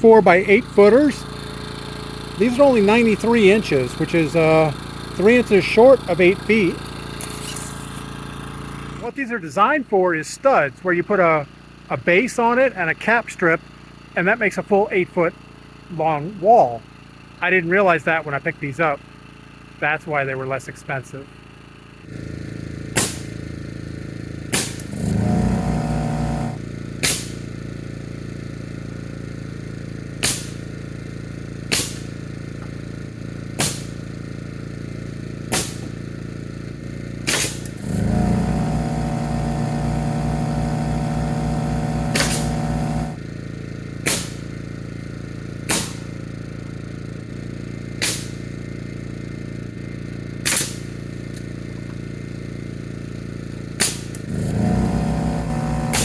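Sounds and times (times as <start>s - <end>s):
air compressor running: 0.0s - 9.2s, 10.8s - 20.5s, 21.2s - 56.0s
engine hum: 0.0s - 56.0s
pneumatic nail gun firing: 0.8s - 8.9s, 22.8s - 23.6s, 24.4s - 43.3s, 43.9s - 46.5s, 47.9s - 48.6s, 50.4s - 52.1s, 53.6s - 56.0s.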